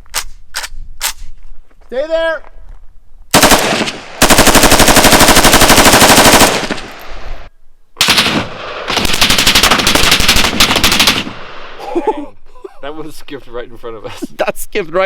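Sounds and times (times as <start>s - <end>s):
automatic gunfire bursts: 3.3s - 7.0s, 8.0s - 11.4s.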